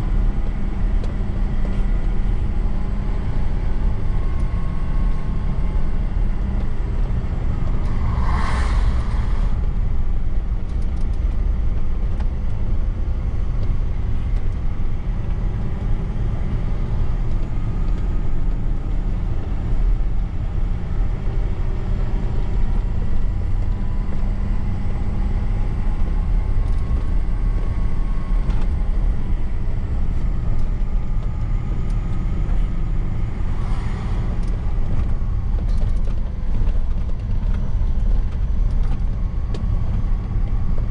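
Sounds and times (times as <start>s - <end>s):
road noise: 0.0s - 40.9s
truck engine rumble: 0.0s - 40.9s.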